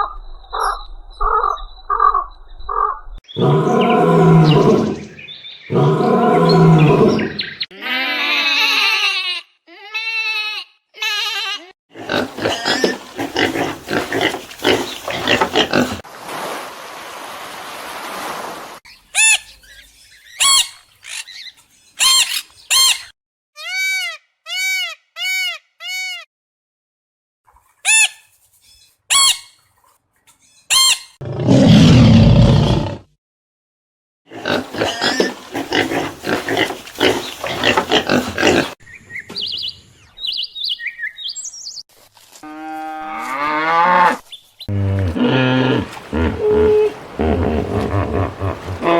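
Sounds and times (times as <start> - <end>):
loud low animal call: 44.7 - 48.9
animal calls: 45.0 - 48.9.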